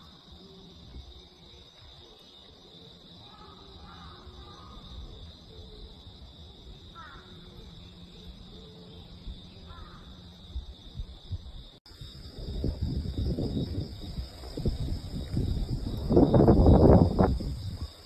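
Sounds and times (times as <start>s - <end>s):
insect chorus: 0.0s - 18.0s
gusty wind buffeting microphone: 9.2s - 18.0s.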